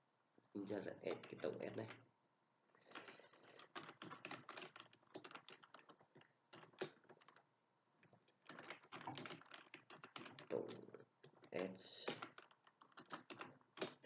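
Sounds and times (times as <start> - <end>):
keyboard typing: 2.8 - 7.4, 8.0 - 14.0.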